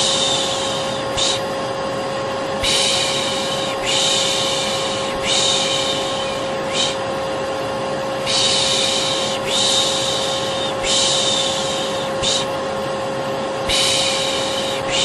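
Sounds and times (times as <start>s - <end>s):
person shushing: 0.0s - 1.5s, 2.6s - 7.0s, 8.2s - 12.5s, 13.7s - 15.0s
vacuum cleaner running: 0.0s - 15.0s.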